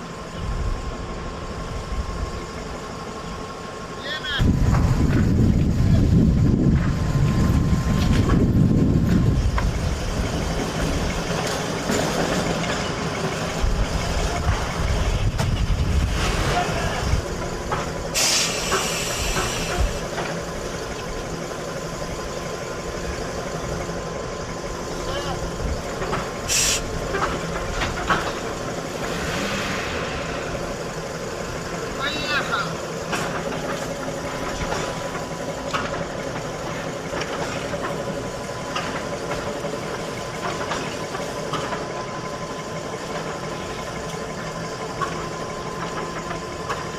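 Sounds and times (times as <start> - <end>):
electric vehicle rumble: 0.0 - 46.9
street traffic: 0.0 - 46.9
short loud hiss: 18.2 - 20.0, 26.5 - 26.9.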